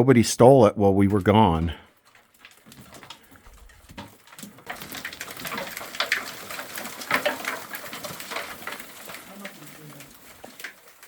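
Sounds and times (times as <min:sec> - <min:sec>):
scuffs and knocks climbing over rock: 0:01.9 - 0:11.0.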